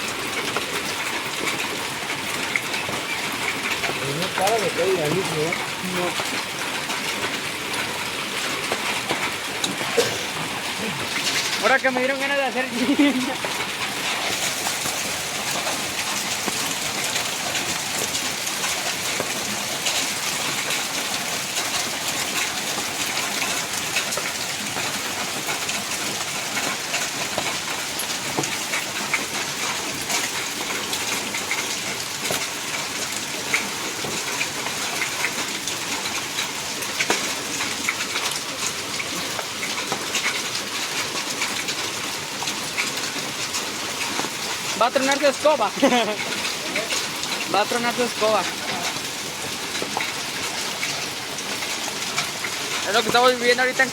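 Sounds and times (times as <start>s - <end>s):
hailstones ticking: 0.0s - 53.9s
heavy hail and rain: 0.0s - 53.9s.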